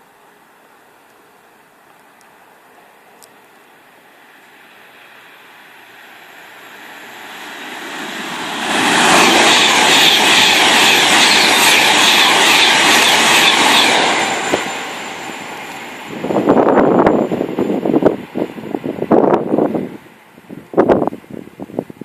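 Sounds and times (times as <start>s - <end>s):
train wheels rushing on rails: 4.2s - 21.4s.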